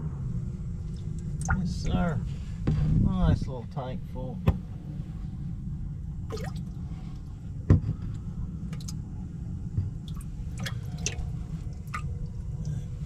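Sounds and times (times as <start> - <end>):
steady low rumble: 0.0 - 13.0
water dripping and splashing: 1.4 - 1.6, 6.3 - 6.7, 8.7 - 9.0, 10.0 - 12.8.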